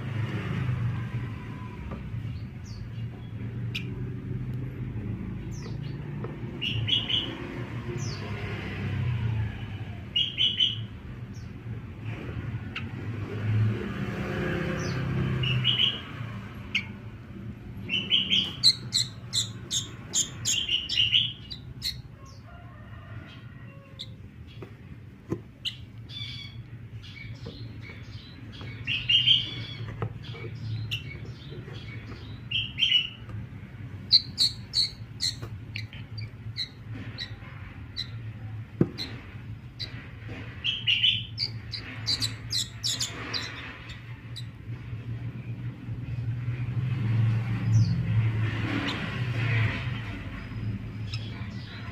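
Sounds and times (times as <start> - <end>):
bird chirping: 2.2 - 4.2, 5.3 - 8.5, 10.1 - 11.6, 14.7 - 22.5, 25.5 - 44.8, 50.0 - 51.9.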